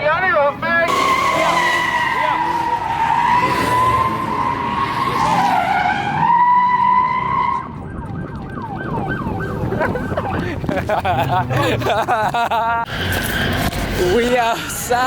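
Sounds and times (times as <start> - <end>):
voices: 0.0 - 5.7
car tires squealing: 0.8 - 7.8, 12.9 - 15.0.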